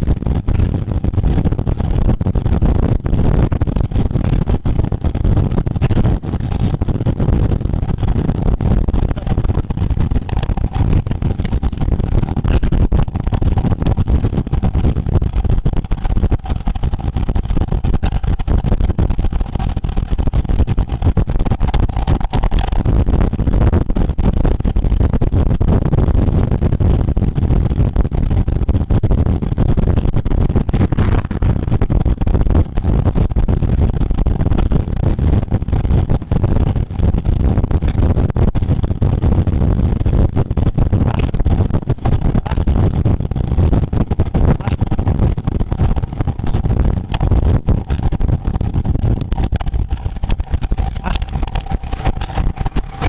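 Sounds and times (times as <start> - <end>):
road noise: 0.0 - 22.8, 30.6 - 32.8, 44.3 - 53.0
crackles: 0.0 - 53.0
faint steady whine: 0.0 - 53.0
wind buffeting microphone: 0.0 - 53.0.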